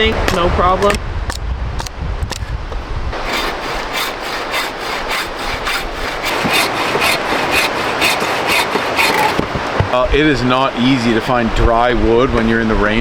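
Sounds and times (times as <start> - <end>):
knife shaving dry wood: 3.2 - 10.0.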